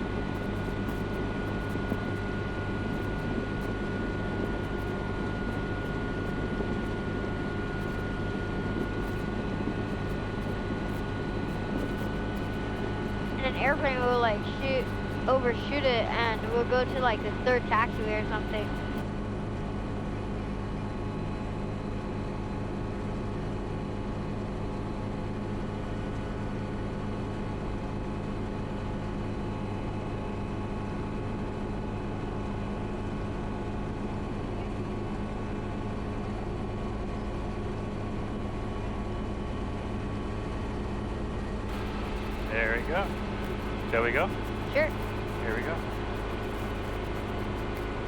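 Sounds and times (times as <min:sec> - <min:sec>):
helicopter engine and rotors: 0:00.0 - 0:48.0.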